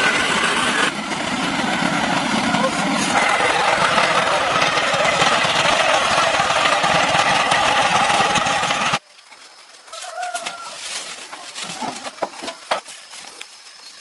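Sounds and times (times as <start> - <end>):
loud machine noise: 0.0 - 9.0.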